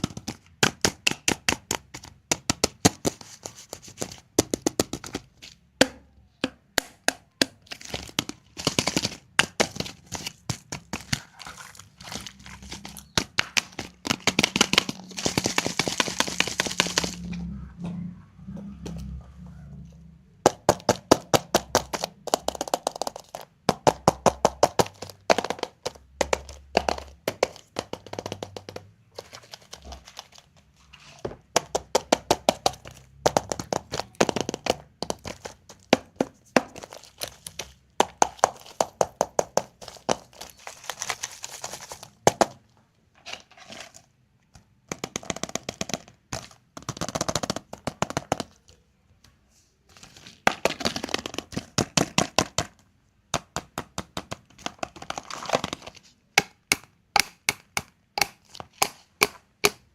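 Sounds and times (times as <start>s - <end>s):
wrappers crackling and crinkling: 9.9s - 17.4s, 29.1s - 31.3s, 39.8s - 42.2s.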